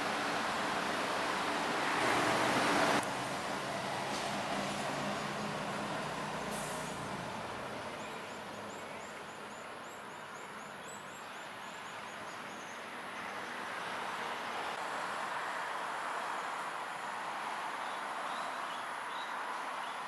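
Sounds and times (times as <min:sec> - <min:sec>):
distant traffic: 0:00.0 - 0:10.7.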